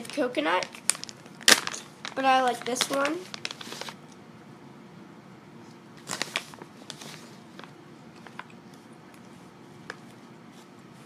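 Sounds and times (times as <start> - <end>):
plastic pouch crinkling: 0.0 - 4.2, 6.0 - 8.5
child chewing marshmallow: 5.7 - 11.0.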